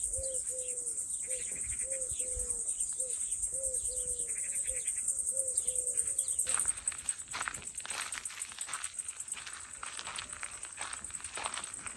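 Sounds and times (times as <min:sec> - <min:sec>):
birds calling: 0:00.0 - 0:06.7
insects trilling: 0:00.0 - 0:11.9.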